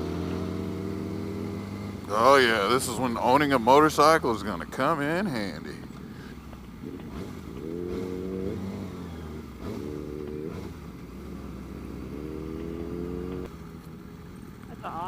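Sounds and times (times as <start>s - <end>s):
motorcycle engine revving: 0.0s - 4.4s, 6.7s - 14.2s
wind and road noise: 0.0s - 15.0s.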